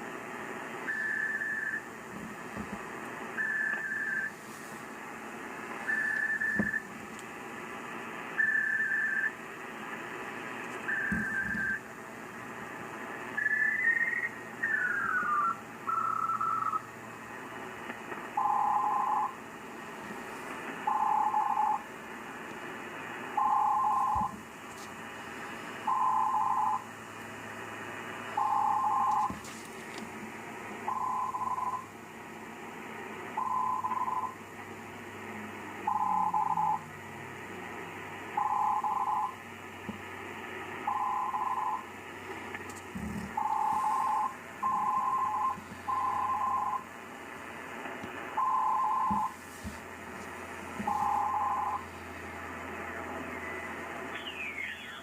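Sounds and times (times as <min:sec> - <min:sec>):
radio band hiss: 0:00.0 - 0:55.0
two-tone radio beep: 0:00.8 - 0:01.9, 0:03.3 - 0:04.4, 0:05.8 - 0:06.9, 0:08.3 - 0:09.4, 0:10.8 - 0:11.9, 0:13.3 - 0:16.9, 0:18.4 - 0:19.4, 0:20.8 - 0:21.8, 0:23.3 - 0:24.4, 0:25.8 - 0:26.8, 0:28.3 - 0:29.4, 0:30.9 - 0:31.9, 0:33.4 - 0:34.4, 0:35.8 - 0:36.9, 0:38.4 - 0:39.4, 0:40.8 - 0:41.9, 0:43.1 - 0:46.9, 0:48.3 - 0:49.8, 0:50.8 - 0:52.4, 0:53.0 - 0:55.0
faint carrier whistle: 0:00.9 - 0:01.8, 0:05.9 - 0:06.8.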